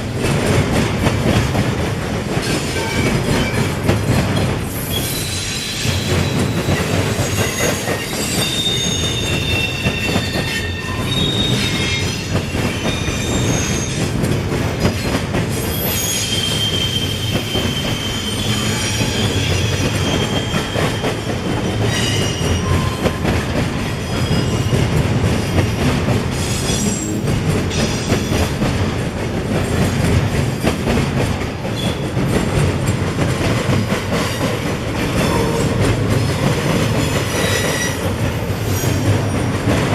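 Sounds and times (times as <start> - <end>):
freight train cars rumbling: 0.0 - 39.9
train wheel squeal: 2.4 - 14.2, 14.8 - 28.6, 31.7 - 32.2, 34.1 - 39.4.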